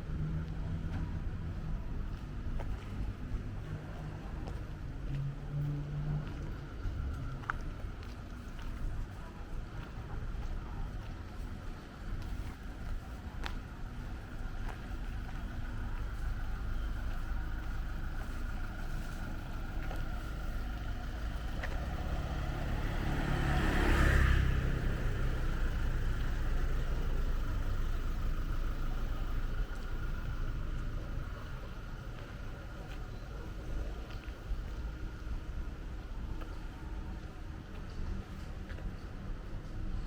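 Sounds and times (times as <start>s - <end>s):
low rumble of traffic: 0.0s - 40.0s
car passing close by: 21.6s - 27.5s.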